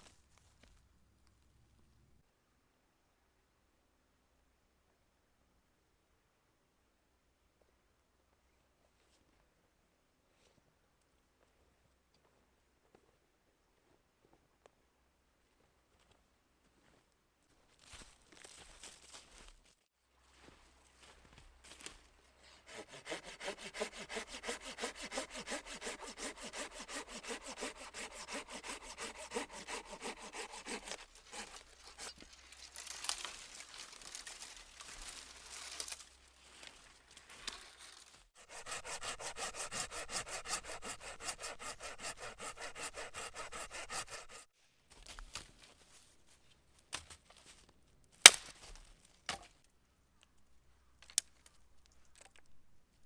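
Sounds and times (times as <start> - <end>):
hand saw cutting wood: 22.4 - 36.0, 38.4 - 44.5
wood cracking: 27.2 - 36.1.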